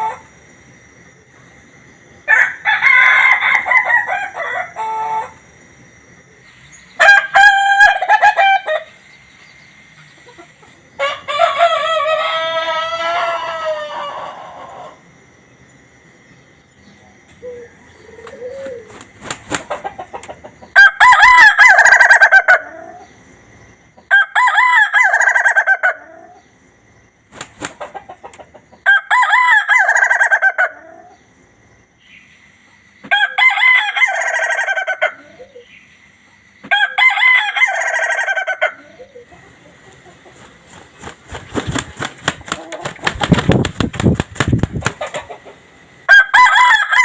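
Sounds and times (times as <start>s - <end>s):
rooster crowing like laughter: 2.3s - 5.4s, 7.0s - 8.9s, 11.0s - 15.0s, 36.6s - 38.8s, 46.1s - 47.0s.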